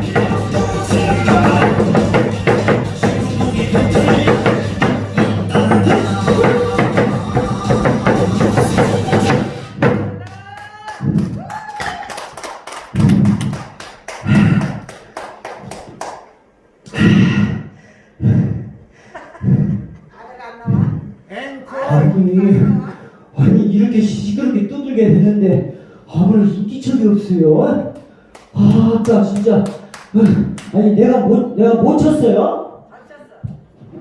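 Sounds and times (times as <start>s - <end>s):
backing music: 0.0s - 10.1s
heavy thuds: 0.0s - 10.2s, 20.7s - 21.3s, 22.0s - 23.7s
loud drumming: 0.0s - 15.0s.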